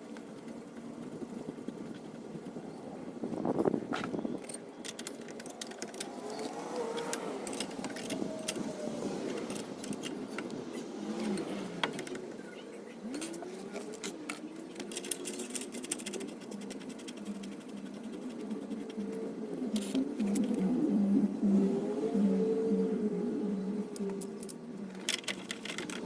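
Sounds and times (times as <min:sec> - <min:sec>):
hand tools clinking on metal: 0:04.4 - 0:10.6, 0:11.2 - 0:16.2.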